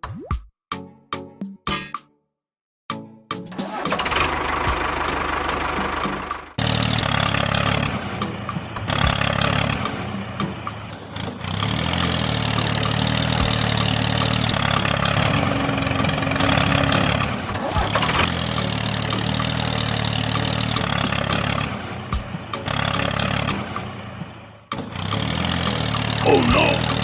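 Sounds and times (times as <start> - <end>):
engine running: 3.5 - 27.0.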